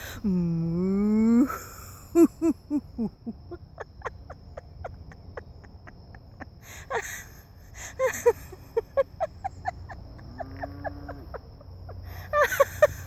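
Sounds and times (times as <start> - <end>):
woman laughing: 1.2 - 13.0.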